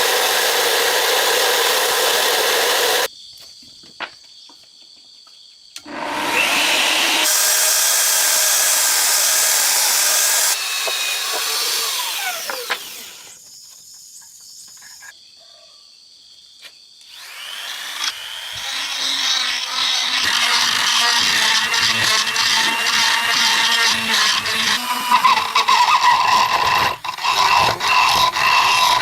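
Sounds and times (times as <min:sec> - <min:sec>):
electric power tool whining: 0:00.0 - 0:03.1, 0:05.8 - 0:13.4, 0:17.1 - 0:29.0.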